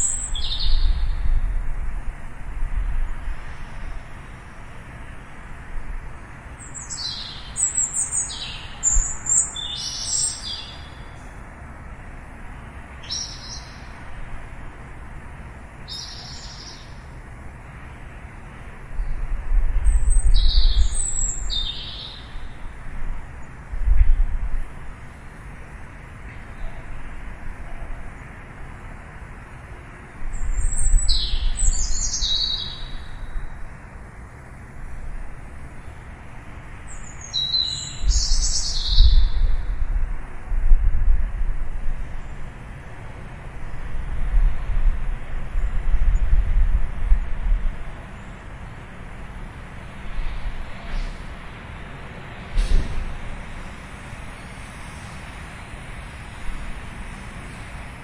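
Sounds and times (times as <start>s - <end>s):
small birds chirping: 0.0s - 1.3s, 6.2s - 11.4s, 13.0s - 14.1s, 15.8s - 17.2s, 19.0s - 22.7s, 30.3s - 33.6s, 36.8s - 39.5s
steady hiss: 48.0s - 58.0s.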